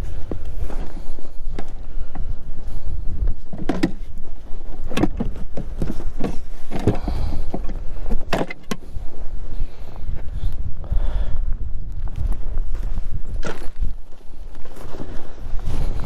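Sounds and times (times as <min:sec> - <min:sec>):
wind buffeting microphone: 0:00.0 - 0:16.0
gear knocking and scraping: 0:03.0 - 0:09.3.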